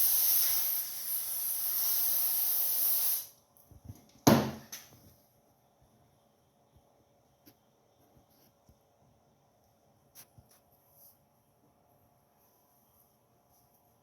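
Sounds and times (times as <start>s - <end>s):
aerosol spray hissing: 0.0s - 3.4s.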